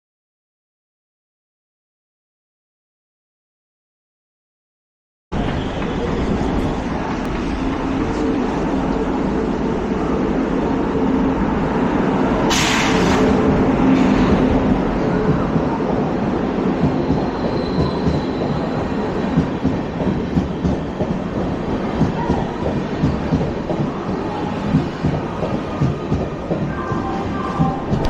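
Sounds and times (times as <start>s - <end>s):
train wheels rumbling on rail: 5.4s - 28.0s
loud rush: 12.5s - 14.8s.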